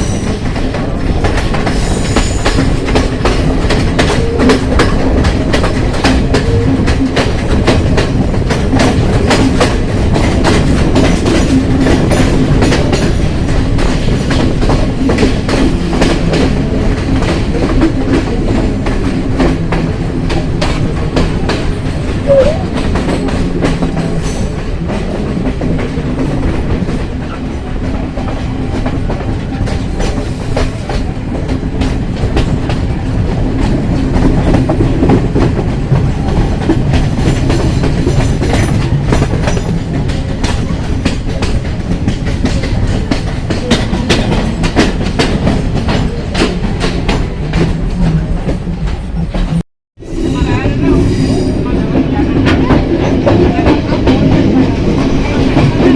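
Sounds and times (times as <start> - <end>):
low train drone: 0.0 - 55.9
train wheels clattering on rails: 0.0 - 55.9.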